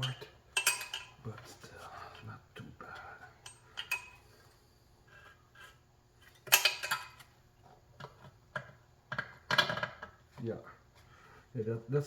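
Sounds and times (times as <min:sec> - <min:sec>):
metal tools clinking on rim: 0:00.0 - 0:01.5, 0:06.3 - 0:07.3.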